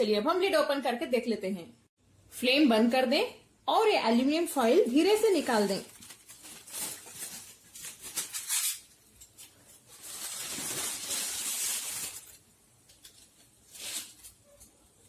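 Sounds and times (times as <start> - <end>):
foil crinkling: 4.7 - 14.6.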